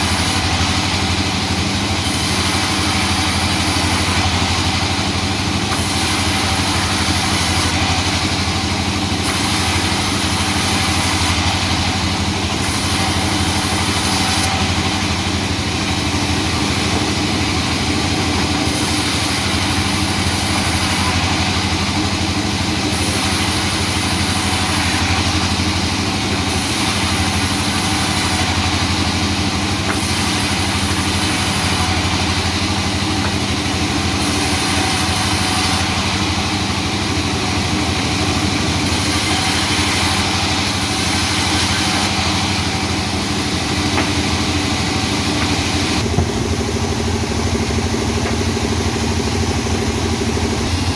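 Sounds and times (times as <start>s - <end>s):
sawmill machinery humming: 0.0s - 50.9s.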